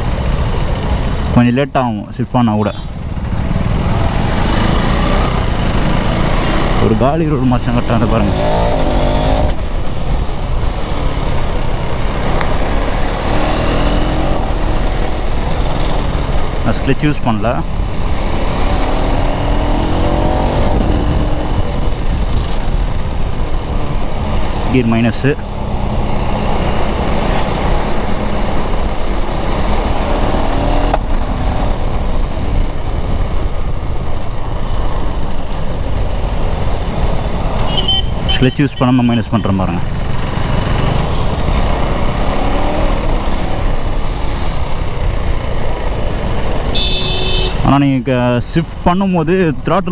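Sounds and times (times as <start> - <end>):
wind and road noise: 0.0 - 49.9
motorcycle engine running: 2.7 - 47.7.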